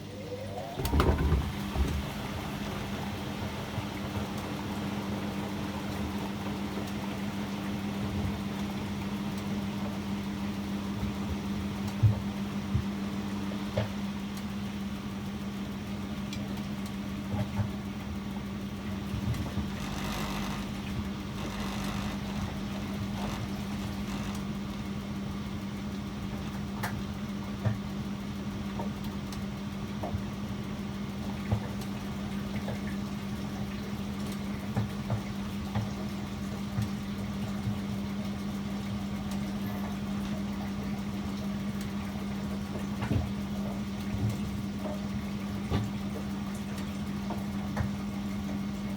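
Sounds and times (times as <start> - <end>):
washing machine humming: 0.0 - 48.9
light knocks and clicks: 19.2 - 25.0.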